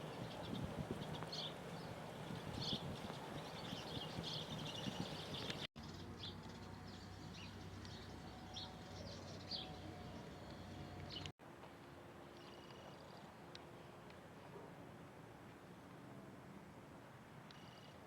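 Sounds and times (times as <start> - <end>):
small birds chirping: 0.0 - 11.3.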